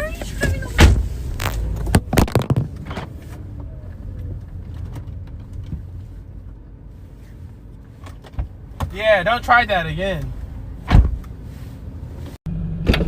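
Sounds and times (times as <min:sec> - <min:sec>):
car rumbling: 0:00.0 - 0:13.0
thump: 0:10.9 - 0:11.3.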